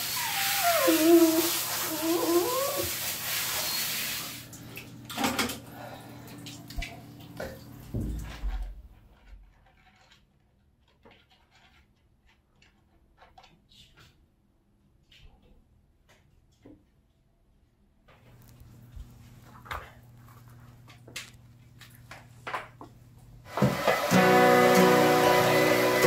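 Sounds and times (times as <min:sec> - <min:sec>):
shower spraying water: 0:00.0 - 0:08.5, 0:23.4 - 0:26.0.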